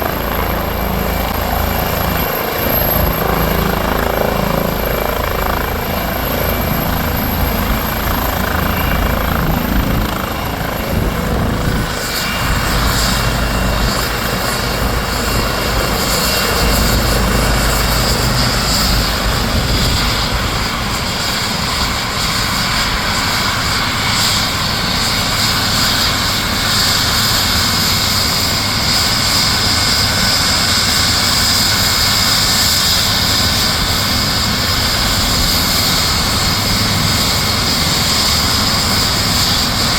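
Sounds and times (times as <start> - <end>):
helicopter turbine and rotor: 0.0 - 39.9.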